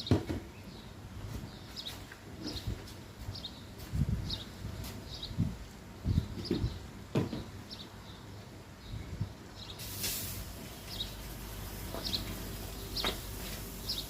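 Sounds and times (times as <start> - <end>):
hose spraying water on vehicle: 9.8 - 14.0
bird chirping: 10.7 - 11.2, 11.8 - 14.0.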